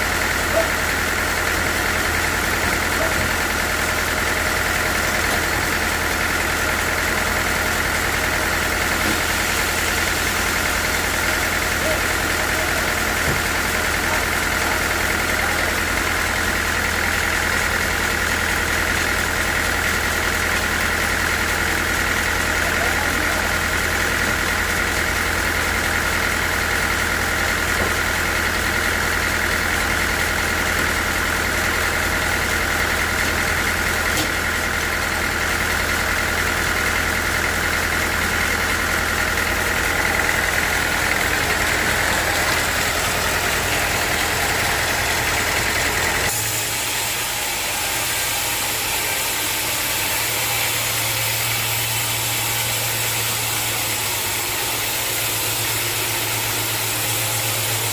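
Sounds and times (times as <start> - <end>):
sawmill motor hum: 0.0 - 57.9
high machine whine: 36.0 - 57.9.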